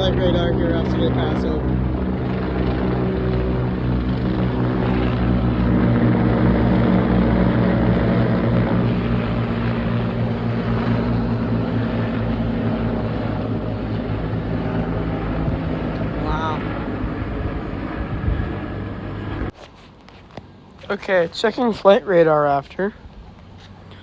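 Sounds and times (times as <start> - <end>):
helicopters passing overhead: 0.0 - 19.6.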